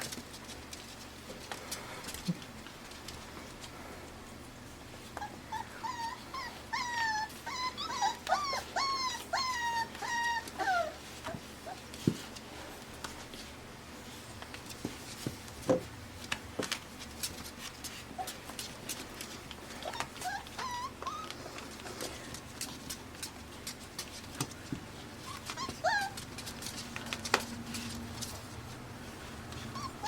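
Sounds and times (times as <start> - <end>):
puppies whining: 5.0 - 12.4, 17.8 - 30.0.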